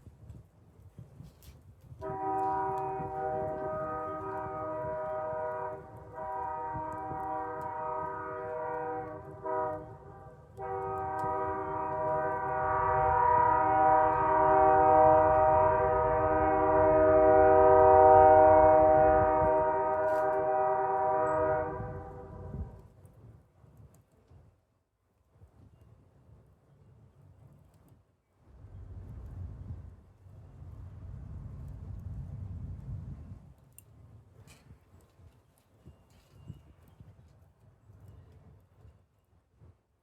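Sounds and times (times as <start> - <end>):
low rumble of passing train: 0.0 - 40.0
train horn blasts: 2.0 - 22.8.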